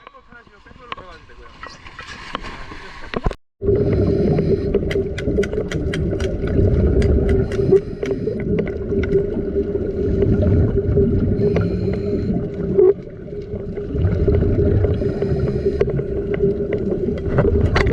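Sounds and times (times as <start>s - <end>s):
sharp clicks: 4.9s - 6.4s, 7.0s - 8.3s.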